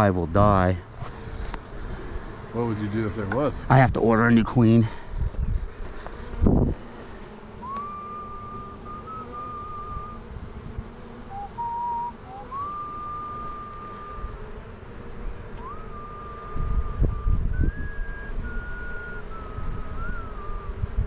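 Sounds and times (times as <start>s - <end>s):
person whistling: 7.6s - 10.2s, 11.3s - 14.4s, 15.6s - 20.8s.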